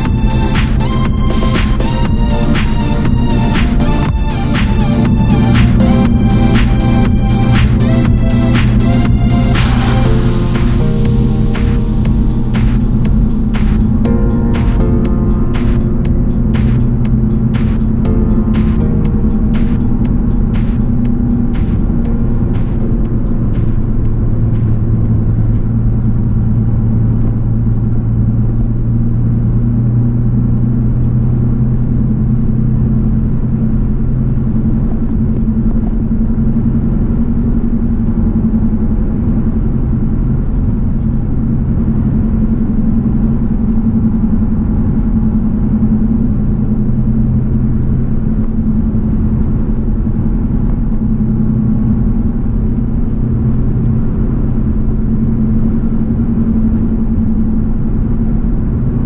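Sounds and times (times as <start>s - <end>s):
car engine cruising: 0.0s - 59.0s
road and wind noise: 19.5s - 59.0s.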